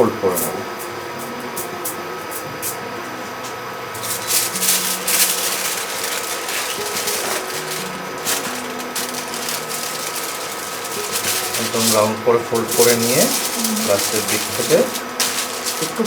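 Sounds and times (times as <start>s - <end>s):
wrapping crackling and rustling: 4.0s - 16.0s.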